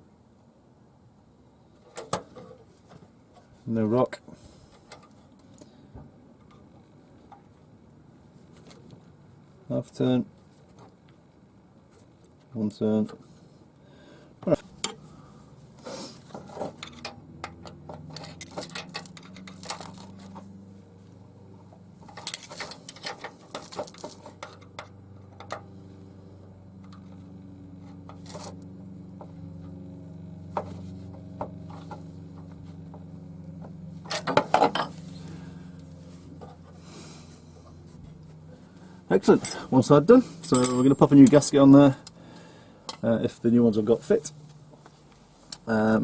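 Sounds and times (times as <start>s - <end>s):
steady low hum: 13.2s - 23.5s, 24.2s - 46.0s
metal hand tools clinking: 40.4s - 41.4s.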